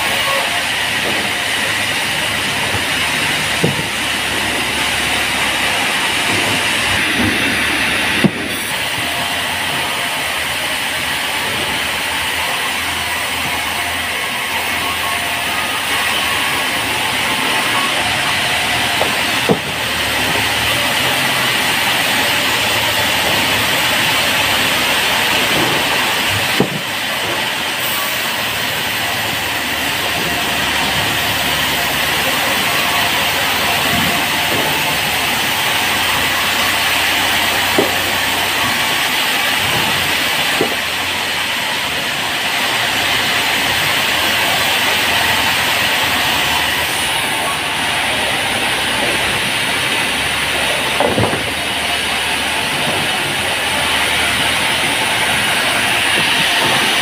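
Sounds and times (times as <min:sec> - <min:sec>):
band saw cutting log: 0:00.0 - 0:57.0
sharp knocks: 0:03.6 - 0:04.1.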